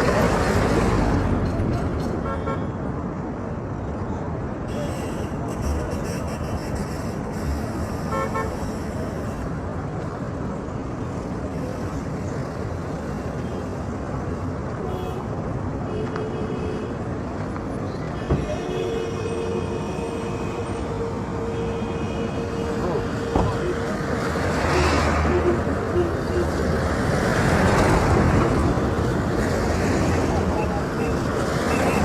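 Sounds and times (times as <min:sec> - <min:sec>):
road traffic rushing: 0:00.0 - 0:32.0
car horns tooting: 0:04.7 - 0:09.1.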